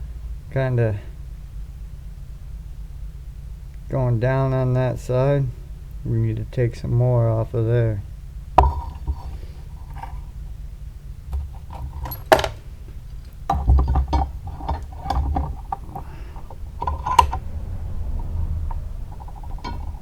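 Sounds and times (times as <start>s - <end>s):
steady low hum: 0.0s - 20.0s
metal blade clanking and rattling: 8.6s - 10.4s, 11.3s - 17.5s, 18.2s - 20.0s.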